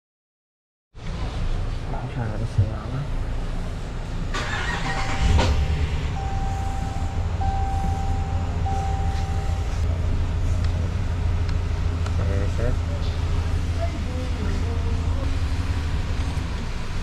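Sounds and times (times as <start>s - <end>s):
engine cranking and idling: 4.1s - 17.0s
warning chime: 4.9s - 9.8s.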